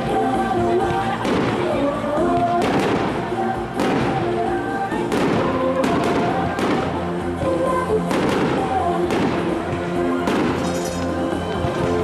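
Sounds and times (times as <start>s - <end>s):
music with sustained notes: 0.0s - 12.0s
firework shells bursting: 10.3s - 11.2s.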